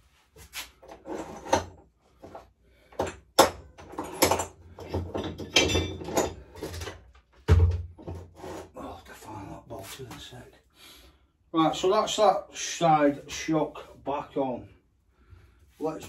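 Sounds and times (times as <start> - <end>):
tools and metal parts clattering: 0.9 - 2.4, 3.0 - 7.3.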